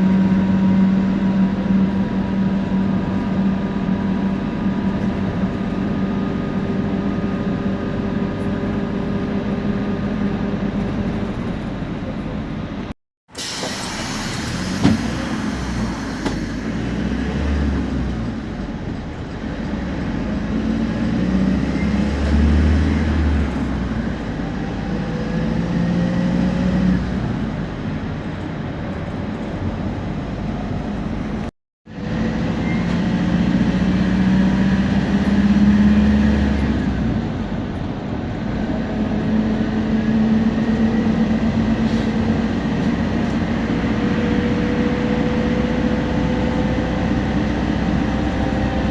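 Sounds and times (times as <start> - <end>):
diesel bus engine pulling: 0.0 - 48.9.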